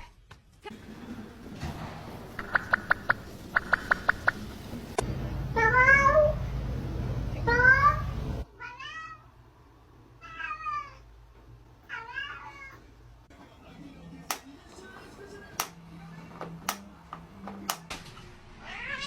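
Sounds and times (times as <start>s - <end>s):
cat meowing: 10.2s - 11.0s, 18.6s - 19.0s.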